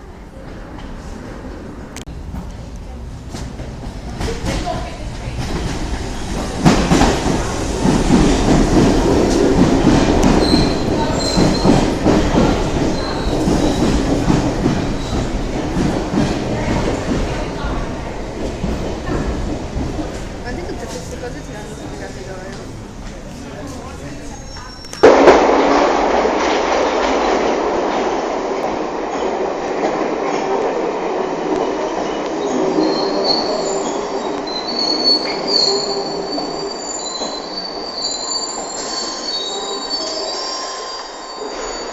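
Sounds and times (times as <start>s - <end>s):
train wheels rumbling on rails: 0.0s - 40.6s
high-pitched wheel squeals: 32.1s - 41.9s.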